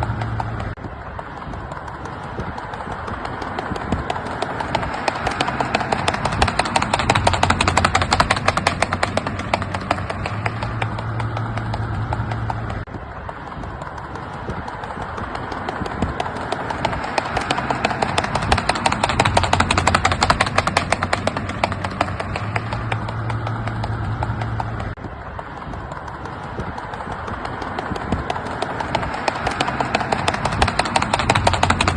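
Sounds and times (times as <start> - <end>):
horse hoofbeats: 0.0 - 31.9.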